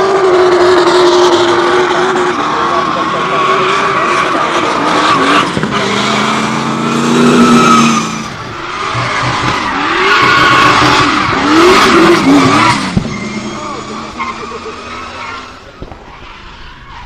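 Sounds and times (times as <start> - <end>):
car engine revving: 0.0 - 16.6
tyres screeching: 3.3 - 17.0.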